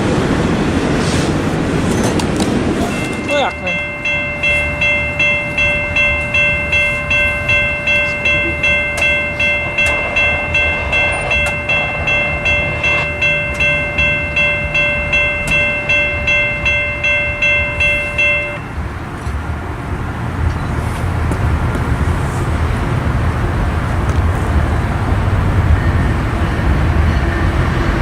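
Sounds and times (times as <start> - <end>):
railroad crossing bell ringing: 1.9 - 20.7
low rumble: 2.6 - 20.4.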